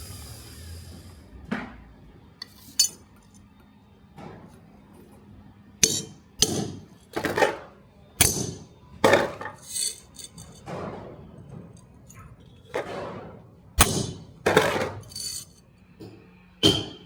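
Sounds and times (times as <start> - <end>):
metal objects clanking: 2.4 - 3.0, 5.8 - 7.6, 8.2 - 11.0, 13.8 - 15.6.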